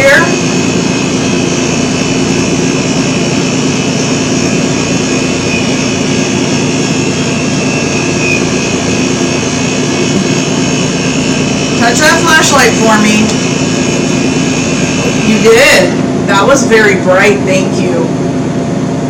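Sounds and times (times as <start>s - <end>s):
steady hum and hiss: 0.0s - 19.0s
low tone: 1.3s - 16.3s.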